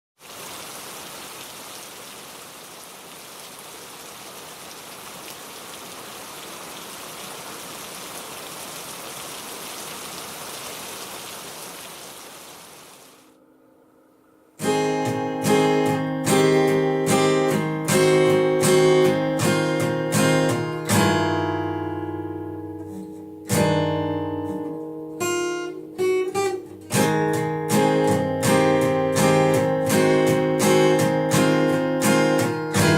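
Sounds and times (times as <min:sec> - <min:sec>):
steady rain falling: 0:00.2 - 0:13.3
acoustic guitar strumming: 0:13.4 - 0:32.9.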